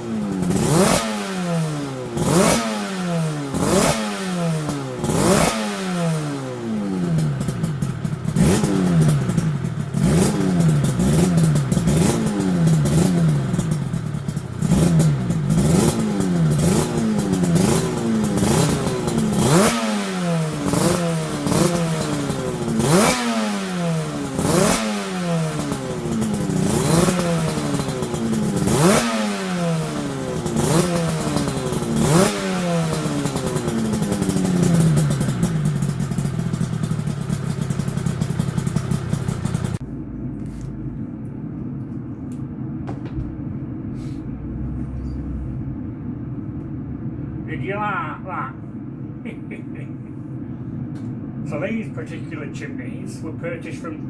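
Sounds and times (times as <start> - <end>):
motorcycle engine revving: 0.0 - 41.2, 42.8 - 47.7.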